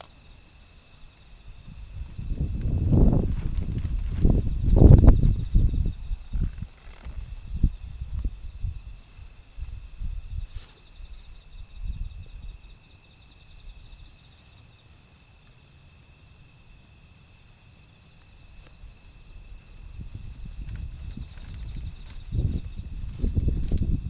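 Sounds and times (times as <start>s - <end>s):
insects chirping: 0.0s - 24.0s
wind buffeting microphone: 1.4s - 12.7s, 18.7s - 24.0s.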